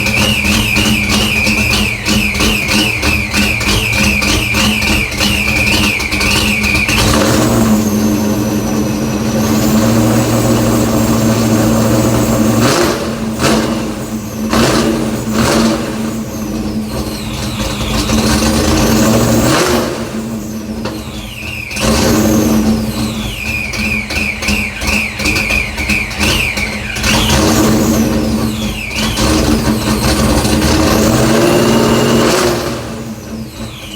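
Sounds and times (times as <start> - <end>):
car exhaust idling and revving: 0.0 - 33.9.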